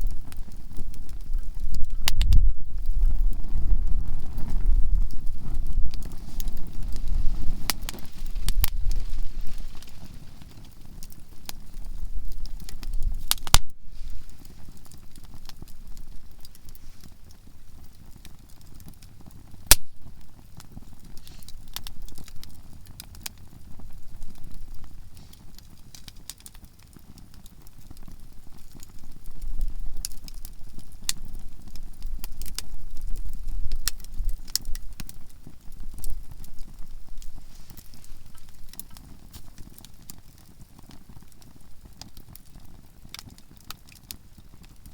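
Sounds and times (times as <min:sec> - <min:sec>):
campfire crackling and popping: 0:00.0 - 0:44.9.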